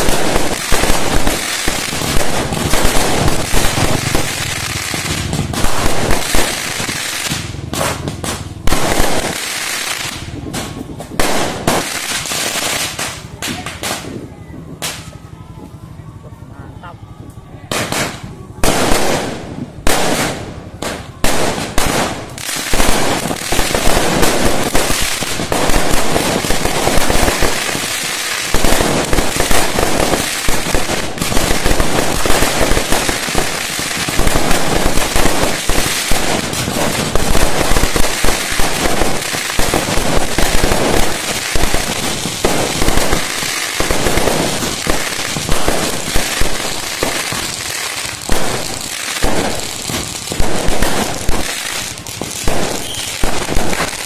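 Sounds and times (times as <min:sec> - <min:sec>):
fireworks banging and crackling: 0:00.0 - 0:16.4, 0:17.6 - 0:54.0.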